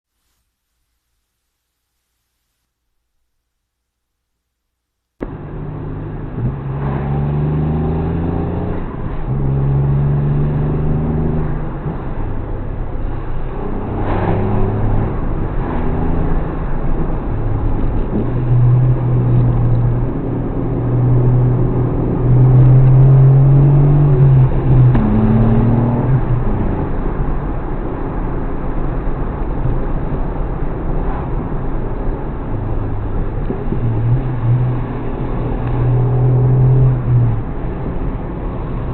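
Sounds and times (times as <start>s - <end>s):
small car engine accelerating: 5.2s - 27.6s, 32.0s - 38.9s.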